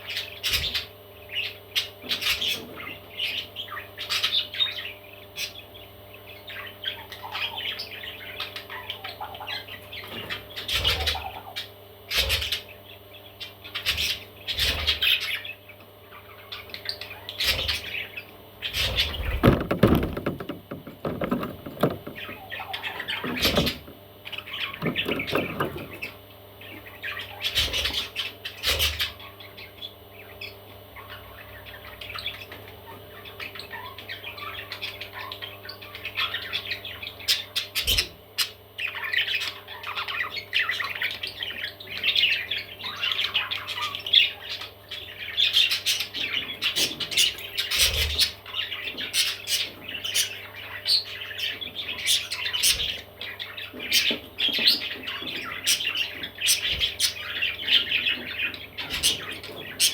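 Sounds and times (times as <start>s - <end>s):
baby parrots squawking and chirping: 0.0s - 59.9s
sharp knocks: 19.4s - 22.4s.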